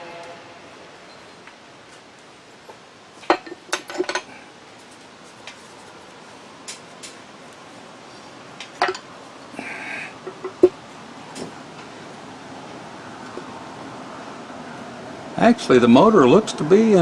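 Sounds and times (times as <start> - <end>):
metal parts clanking on workbench: 3.2 - 4.3, 8.8 - 9.1.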